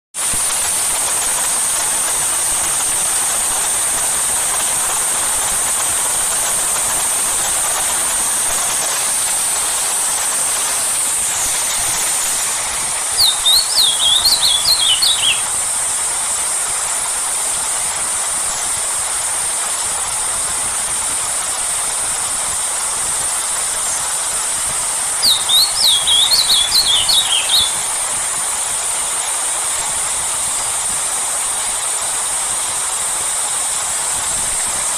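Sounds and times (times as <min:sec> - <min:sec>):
heavy rain hissing: 0:00.2 - 0:34.9
songbird chirping: 0:13.2 - 0:15.5, 0:25.2 - 0:27.9.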